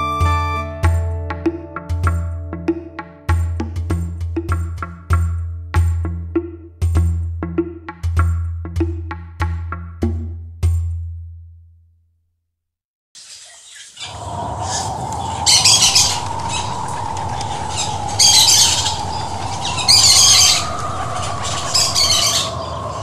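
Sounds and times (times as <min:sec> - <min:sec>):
high-pitched bird calls: 0:13.2 - 0:23.0
steady background noise: 0:14.1 - 0:23.0.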